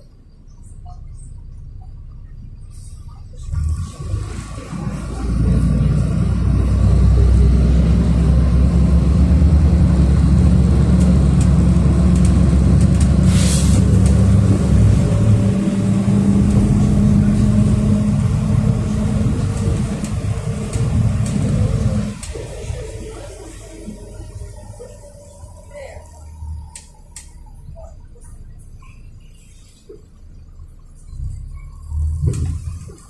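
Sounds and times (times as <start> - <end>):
bus engine drone: 0.0 - 33.0
short hiss: 13.2 - 13.9.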